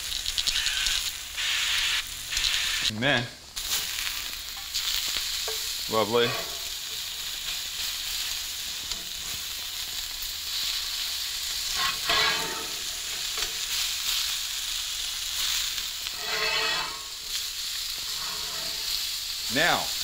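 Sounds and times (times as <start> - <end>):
patties sizzling in a skillet: 0.0 - 20.0
metal spatula scraping: 11.6 - 13.6, 16.0 - 19.3.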